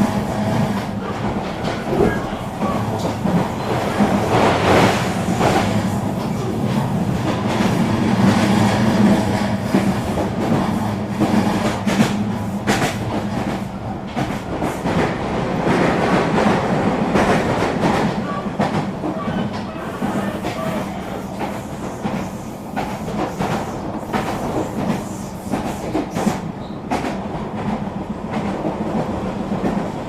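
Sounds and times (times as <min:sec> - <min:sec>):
train rumbling at speed: 0:00.0 - 0:30.0.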